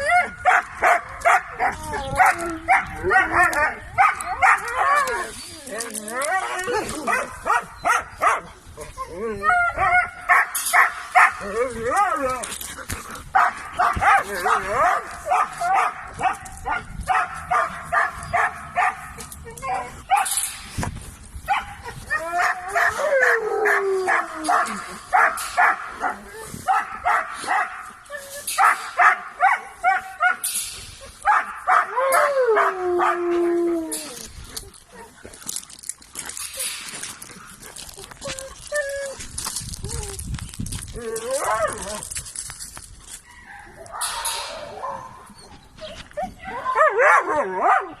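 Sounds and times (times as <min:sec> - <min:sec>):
dogs barking: 0:00.0 - 0:05.1, 0:06.4 - 0:08.6, 0:09.4 - 0:12.1, 0:13.2 - 0:20.4, 0:21.5 - 0:30.5, 0:31.2 - 0:33.2, 0:43.3 - 0:45.6, 0:46.5 - 0:48.0
rustling noise: 0:09.9 - 0:31.8, 0:33.1 - 0:46.6.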